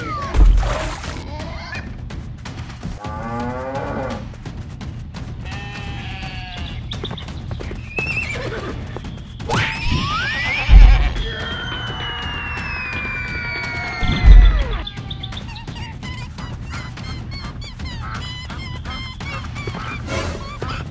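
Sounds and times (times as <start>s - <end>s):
background music: 0.0s - 20.9s
rising whistle-like glide: 9.5s - 14.6s
cartoon animal calls: 9.5s - 20.9s
heavy low thump: 9.8s - 11.3s, 14.0s - 14.8s.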